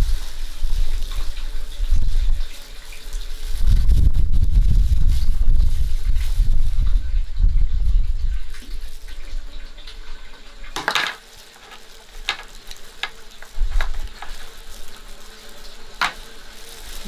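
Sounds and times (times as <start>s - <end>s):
water pouring: 0.0s - 17.0s
utensils and dishes clinking: 9.5s - 17.0s.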